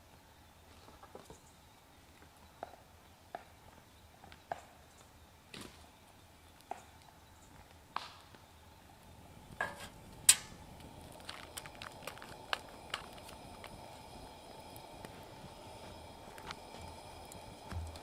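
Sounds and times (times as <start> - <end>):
campfire crackles: 0.0 - 18.0
food sizzling: 9.4 - 18.0.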